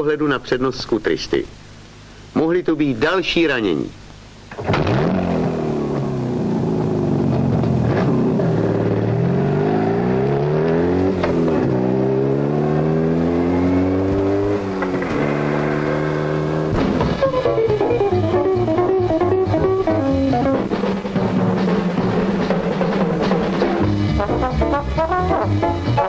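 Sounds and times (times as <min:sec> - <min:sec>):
motorcycle engine accelerating: 0:04.5 - 0:24.4
orchestral film music: 0:17.1 - 0:26.0.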